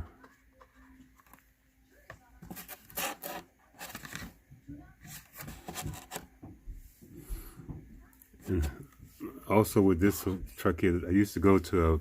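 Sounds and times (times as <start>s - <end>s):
toy packaging rubbing and scraping: 2.4s - 4.4s, 5.0s - 6.3s.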